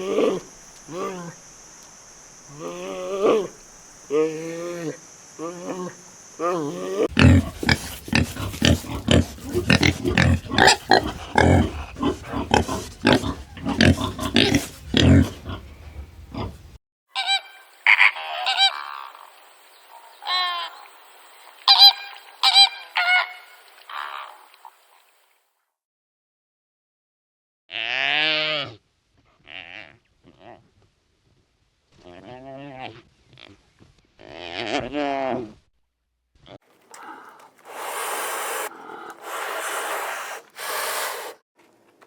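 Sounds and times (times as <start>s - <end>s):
animal grunts or snorts: 7.1s - 16.7s, 36.9s - 41.4s.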